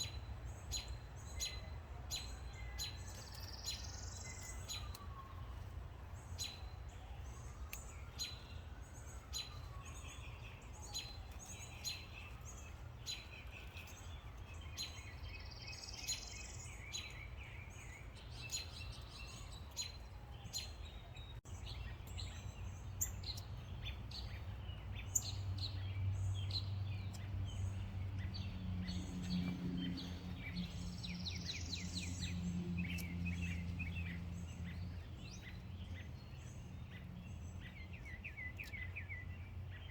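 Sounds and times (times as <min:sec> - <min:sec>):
birds chirping and whistling: 0:00.0 - 0:39.9.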